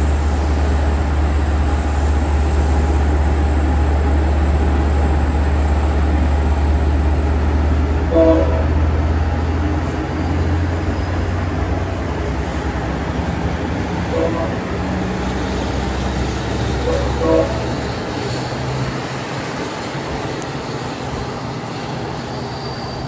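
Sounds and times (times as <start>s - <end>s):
diesel train engine rumble: 0.0s - 23.0s
train horn toot: 8.0s - 9.2s, 14.1s - 15.3s, 16.8s - 18.2s.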